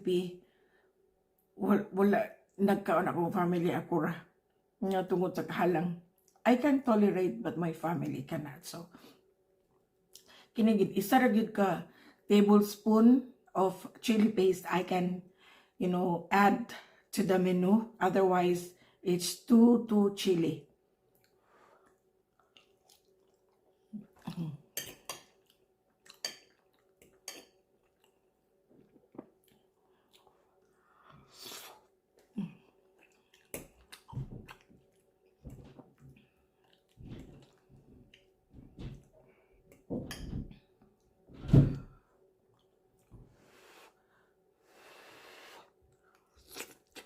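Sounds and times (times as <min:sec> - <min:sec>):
close-up chewing: 0:21.1 - 0:38.4, 0:45.8 - 0:47.0.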